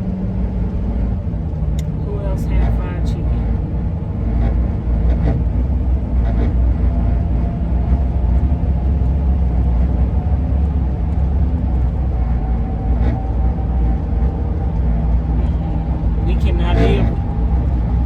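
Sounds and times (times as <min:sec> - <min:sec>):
van road and engine rumble: 0:00.0 - 0:18.0
wind howl from roof rack: 0:03.7 - 0:16.3.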